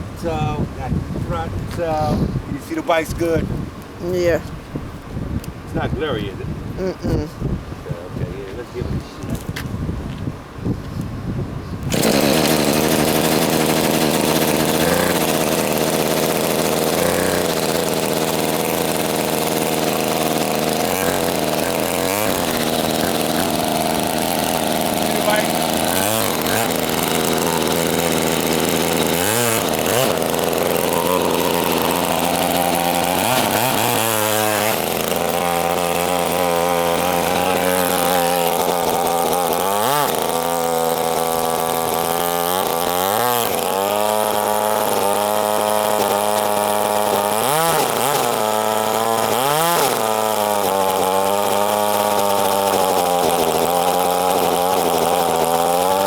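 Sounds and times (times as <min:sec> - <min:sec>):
small engine revving: 0:11.8 - 0:56.0.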